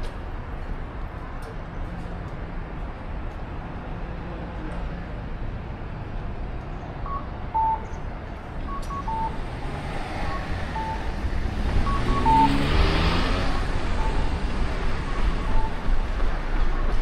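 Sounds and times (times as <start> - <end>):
street traffic noise: 0.0 - 17.0
motor vehicle passing: 9.3 - 15.4
two-note electronic beep: 11.8 - 12.8, 15.1 - 15.8.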